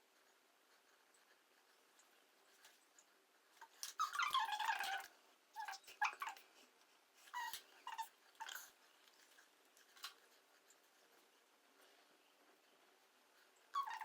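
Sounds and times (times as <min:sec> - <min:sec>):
dog whimpering: 0:03.9 - 0:06.4, 0:07.3 - 0:08.7, 0:13.7 - 0:14.0.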